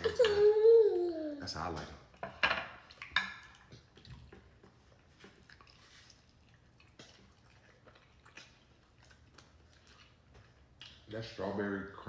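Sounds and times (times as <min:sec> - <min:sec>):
wet eating clicks and smacks: 0:02.8 - 0:11.3.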